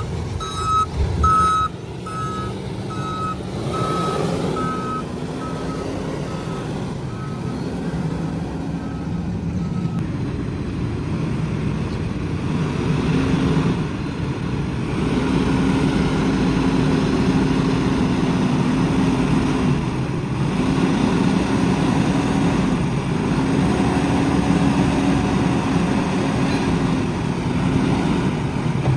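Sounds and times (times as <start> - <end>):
reversing alarm beeping: 0.0 - 7.8
heavy diesel engine under load: 0.0 - 28.9.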